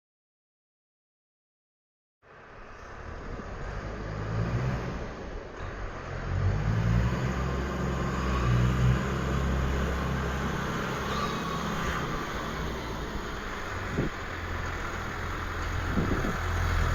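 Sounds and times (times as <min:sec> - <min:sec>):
tractor diesel engine running: 0:09.0 - 0:16.9.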